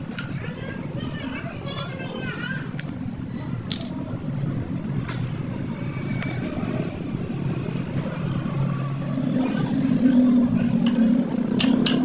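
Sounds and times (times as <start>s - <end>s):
vehicle engine running: 5.5s - 12.0s.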